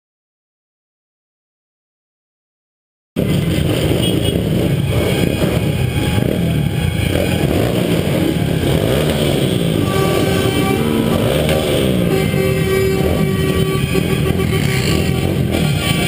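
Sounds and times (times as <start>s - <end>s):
motorcycle engines revving: 3.2s - 16.0s.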